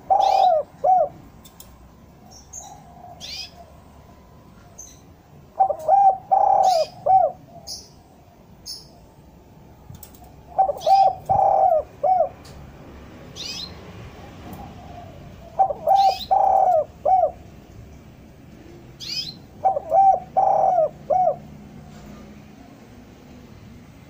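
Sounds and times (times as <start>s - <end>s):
dove cooing: 0.0s - 1.6s, 2.3s - 4.0s, 4.7s - 8.0s, 10.0s - 12.6s, 14.2s - 17.5s, 18.7s - 22.9s
small bird chirping: 2.2s - 3.7s, 13.4s - 13.8s, 19.0s - 20.7s.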